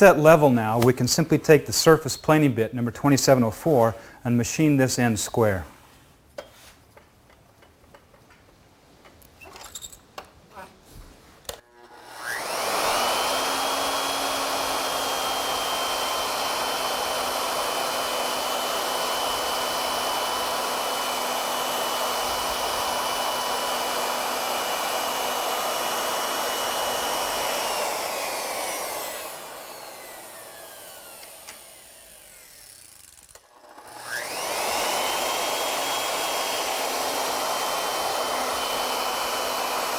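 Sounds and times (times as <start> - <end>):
wood router whining: 11.6 - 39.9.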